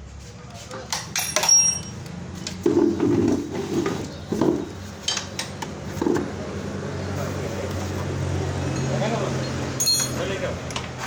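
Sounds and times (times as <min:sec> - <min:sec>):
metal tools and engine parts clinking: 0:00.9 - 0:02.6, 0:08.6 - 0:09.2, 0:09.8 - 0:11.0.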